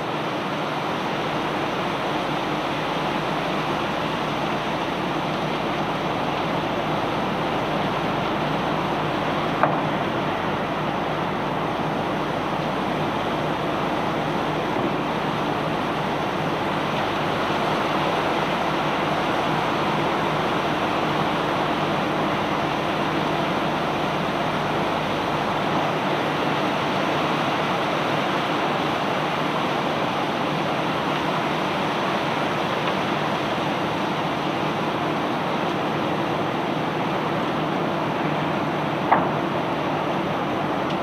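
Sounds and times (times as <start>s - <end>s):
low engine hum: 0.0s - 41.0s.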